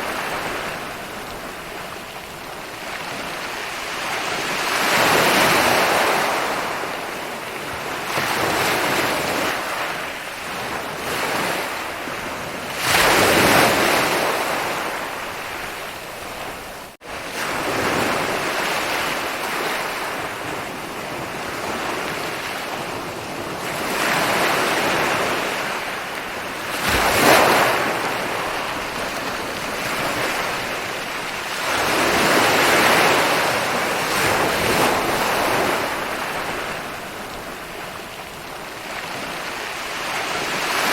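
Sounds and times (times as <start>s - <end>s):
ocean waves breaking on shore: 0.0s - 40.9s.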